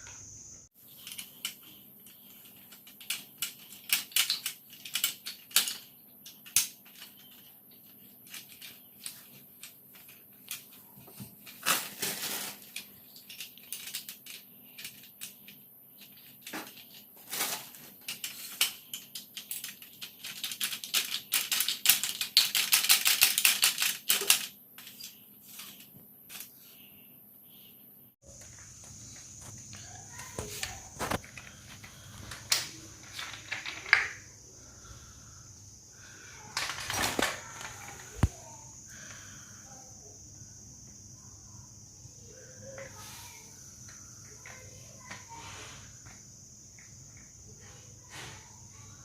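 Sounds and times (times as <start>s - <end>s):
metal clicks and rattles: 1.0s - 10.8s, 12.6s - 17.1s, 18.0s - 26.5s, 29.7s - 34.2s.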